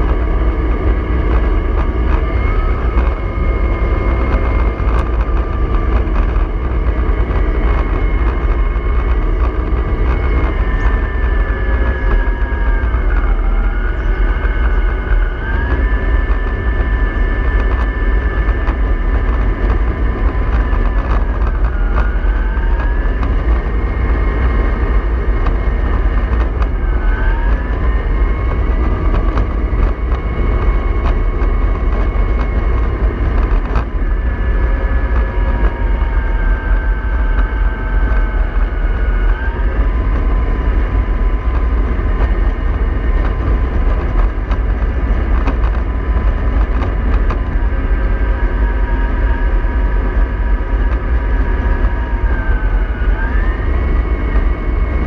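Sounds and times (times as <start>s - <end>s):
bus engine rumble: 0.0s - 55.0s
drivetrain whine: 0.0s - 55.0s.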